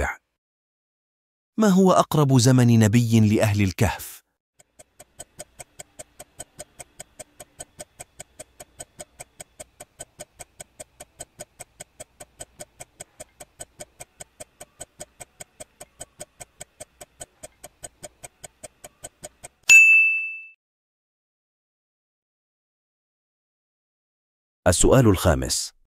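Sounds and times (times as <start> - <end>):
clock ticking: 4.6 - 19.7
loud ringing ding: 19.7 - 20.6.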